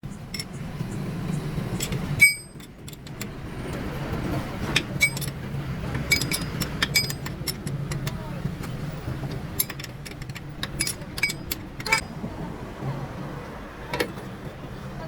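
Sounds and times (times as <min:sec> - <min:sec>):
metal parts clinking: 0:00.3 - 0:00.6, 0:01.8 - 0:03.8, 0:04.7 - 0:08.2, 0:09.2 - 0:12.0.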